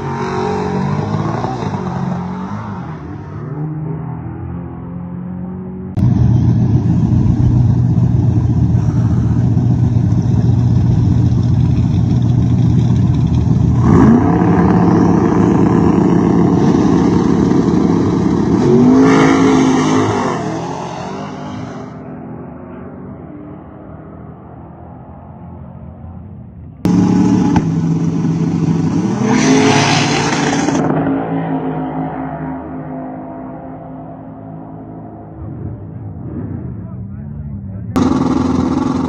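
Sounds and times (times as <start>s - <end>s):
car engine revving high: 0.0s - 22.0s, 26.8s - 33.6s.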